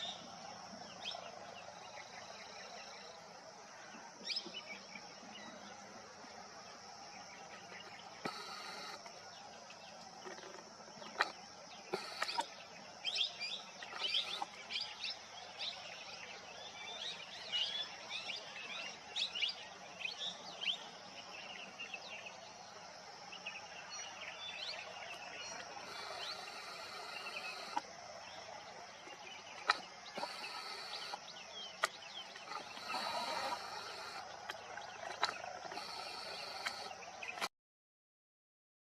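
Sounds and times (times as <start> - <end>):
sharp clicks: 11.2 - 12.5.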